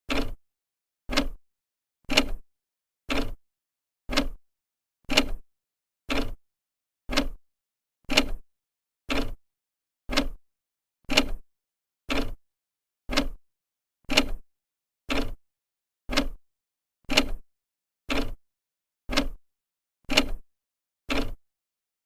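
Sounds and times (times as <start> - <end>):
clock ticking: 0.1 - 0.4, 1.1 - 1.4, 3.1 - 3.4, 4.1 - 4.4, 6.1 - 6.4, 7.1 - 7.4, 9.1 - 9.4, 10.1 - 10.4, 12.1 - 12.4, 13.1 - 13.4, 14.1 - 14.4, 15.1 - 15.4, 16.1 - 16.4, 17.1 - 17.4, 18.1 - 18.4, 19.1 - 19.4, 20.1 - 20.4, 21.1 - 21.4.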